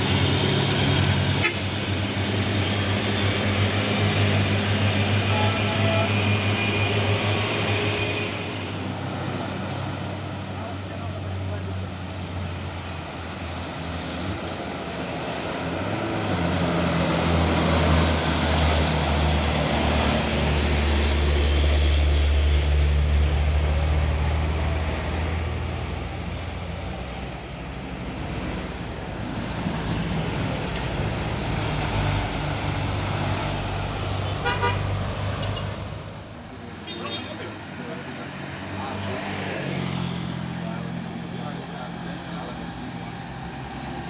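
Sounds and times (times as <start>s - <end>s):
diesel truck engine under load: 8.4s - 36.6s.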